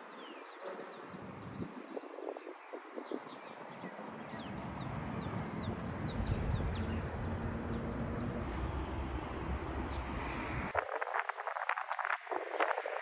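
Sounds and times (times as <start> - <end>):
small birds chirping: 0.0 - 8.3.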